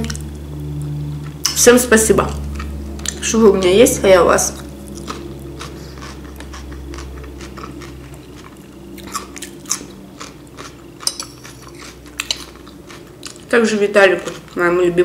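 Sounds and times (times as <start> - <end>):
wet chewing with clicks: 4.5 - 13.5.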